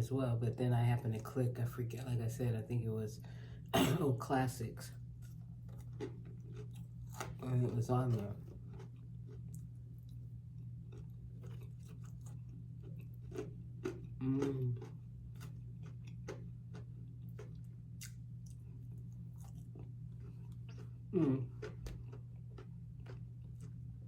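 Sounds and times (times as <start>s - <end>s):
chewing crunchy fried fish: 4.9s - 24.0s.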